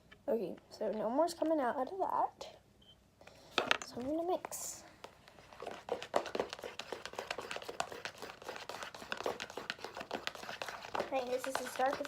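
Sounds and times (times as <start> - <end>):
slime being stirred: 4.4 - 12.0.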